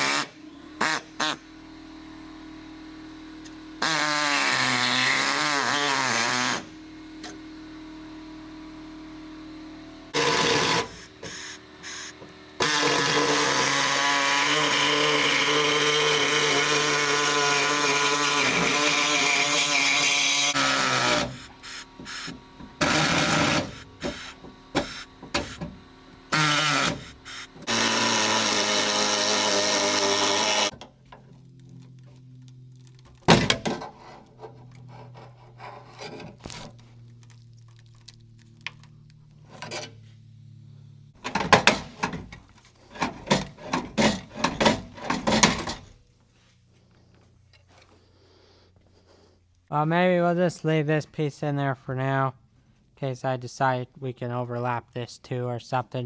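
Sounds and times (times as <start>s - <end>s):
air saw cutting sheet metal: 0.0s - 2.3s, 3.0s - 7.4s, 10.1s - 30.8s.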